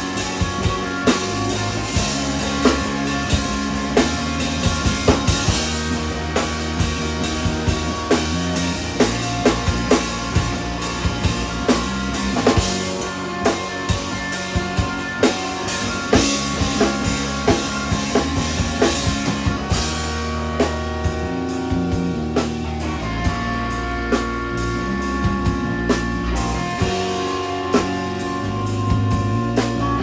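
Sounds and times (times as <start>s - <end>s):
drum kit kick and snare beat: 0.0s - 30.0s
instrumental rock band playing live: 0.0s - 30.0s.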